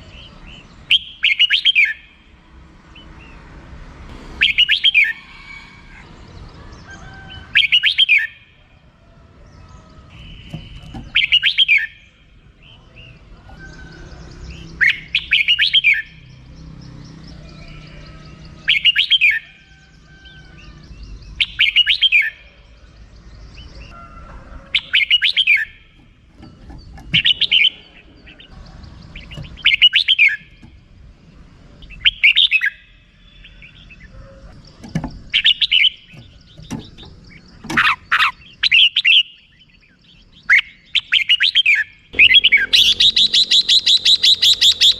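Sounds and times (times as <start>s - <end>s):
bird chattering call: 9.5s - 12.2s, 24.8s - 26.0s, 26.6s - 30.8s, 31.8s - 44.9s.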